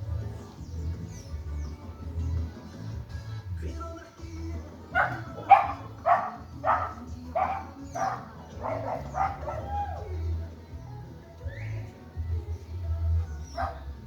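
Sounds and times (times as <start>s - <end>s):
dog barking: 4.9s - 10.0s, 13.5s - 13.9s.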